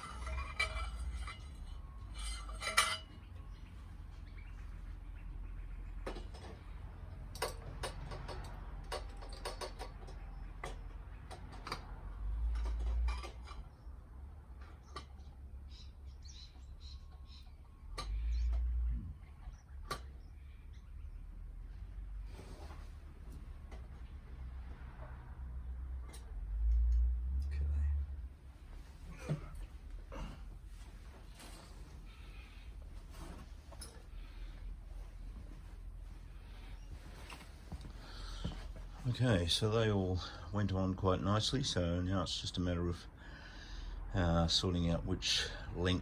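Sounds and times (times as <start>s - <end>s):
metal pipes clinking: 0.0s - 3.7s, 6.0s - 13.9s.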